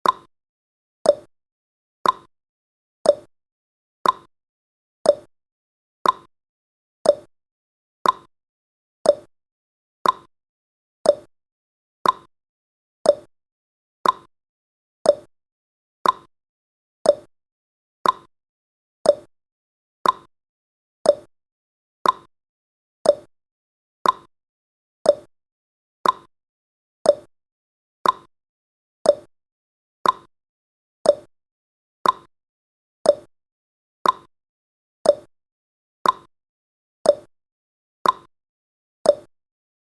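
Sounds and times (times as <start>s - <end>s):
countdown timer ticking: 5.1s - 5.3s, 7.1s - 7.3s, 9.1s - 9.3s, 11.1s - 11.3s, 13.1s - 13.3s, 15.1s - 15.3s, 17.1s - 17.3s, 19.1s - 19.3s, 21.1s - 21.3s, 23.0s - 23.3s, 24.0s - 24.3s, 25.1s - 25.3s, 27.1s - 27.3s, 28.0s - 28.3s, 29.1s - 29.3s, 30.0s - 30.3s, 31.1s - 31.3s, 32.0s - 32.3s, 33.1s - 33.3s, 34.0s - 34.3s, 35.1s - 35.3s, 36.0s - 36.3s, 37.1s - 37.3s, 38.0s - 38.3s, 39.1s - 39.3s.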